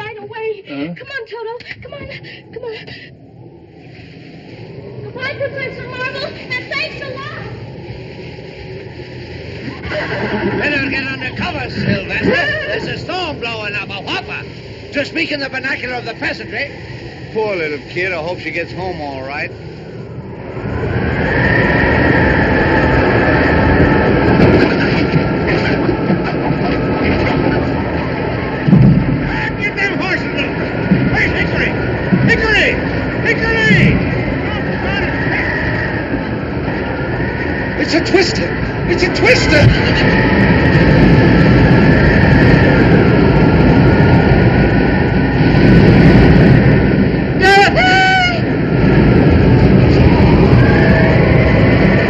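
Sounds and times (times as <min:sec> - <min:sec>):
storm wind rushing and howling: 0:00.0 - 0:52.0.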